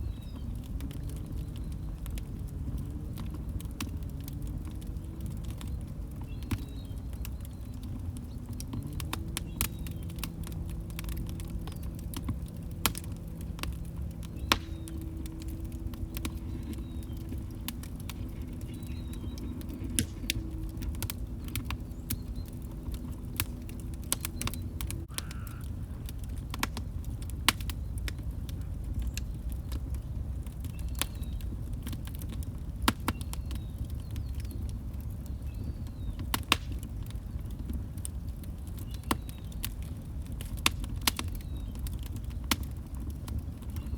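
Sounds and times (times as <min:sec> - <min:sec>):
faint low hum: 0:00.0 - 0:30.3
wood fire crackling: 0:00.0 - 0:43.9.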